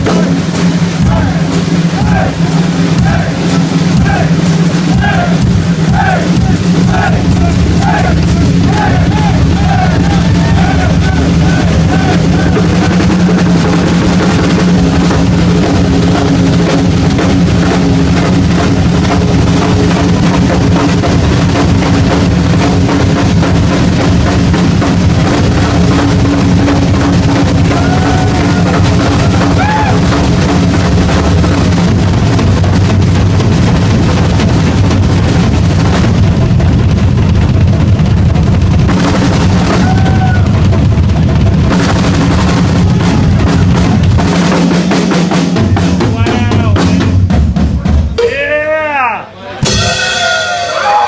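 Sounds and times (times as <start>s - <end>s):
steady low drone: 0.0s - 38.9s
rock drum solo: 0.0s - 51.0s.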